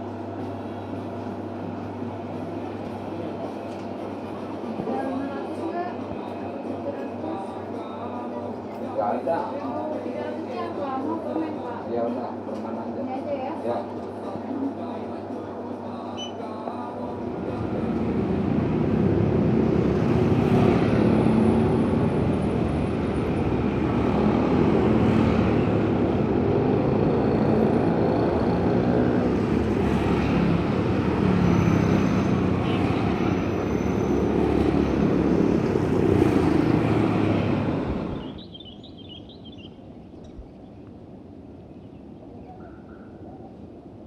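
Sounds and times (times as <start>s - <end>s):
motor vehicles rumbling: 16.6s - 44.0s.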